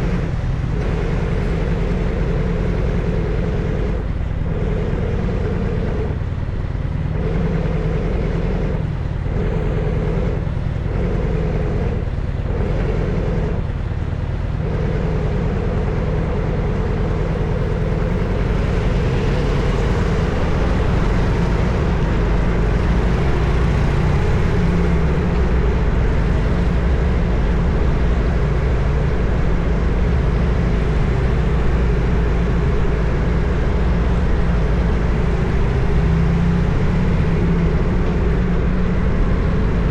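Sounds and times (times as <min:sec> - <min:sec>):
motorcycle exhaust note: 0:14.6 - 0:39.9.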